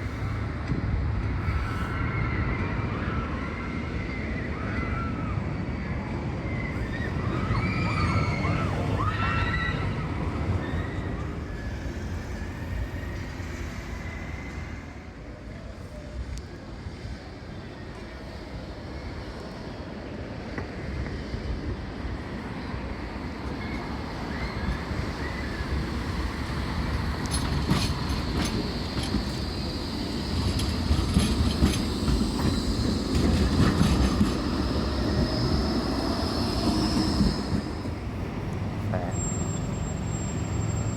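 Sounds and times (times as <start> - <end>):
tram wheels squealing: 0.0 - 40.9
tram whine: 0.0 - 40.9
wheels clicking over rails: 24.6 - 38.7.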